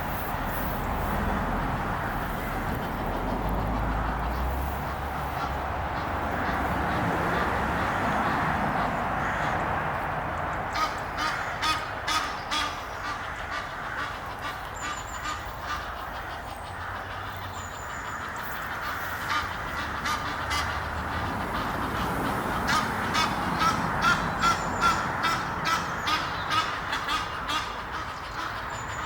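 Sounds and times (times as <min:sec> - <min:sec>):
geese honking: 0:00.0 - 0:09.7, 0:10.7 - 0:29.0.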